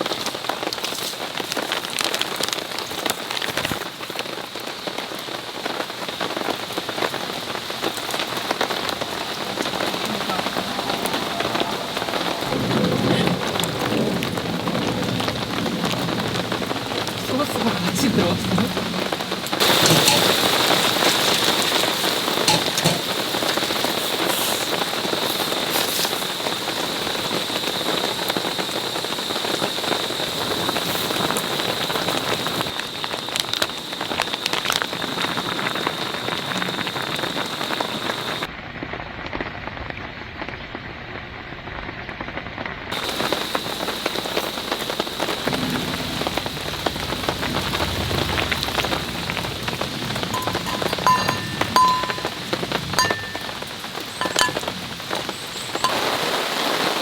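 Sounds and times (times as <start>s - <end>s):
heavy rain on a tarp: 0.0s - 50.4s, 52.4s - 57.0s.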